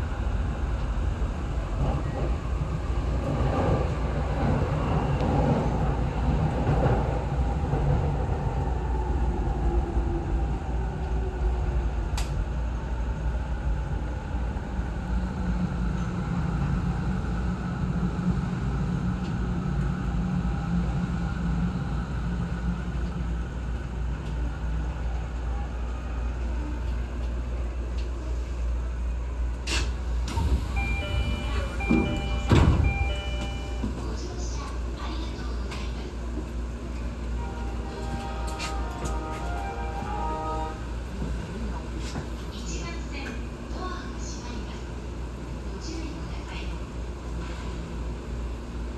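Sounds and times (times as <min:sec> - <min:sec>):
electric train humming: 0:29.0 - 0:48.9.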